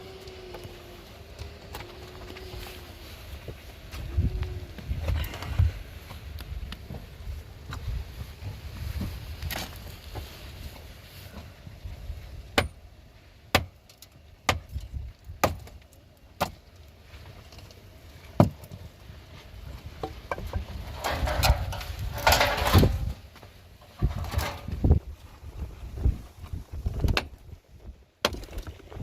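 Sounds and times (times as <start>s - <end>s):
scraping rustling noise: 0.6s - 12.4s, 19.0s - 27.1s.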